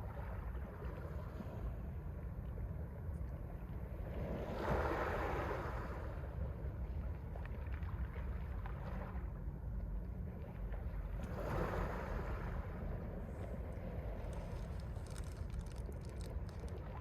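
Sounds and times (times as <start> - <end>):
low rumble: 12.1 - 17.0.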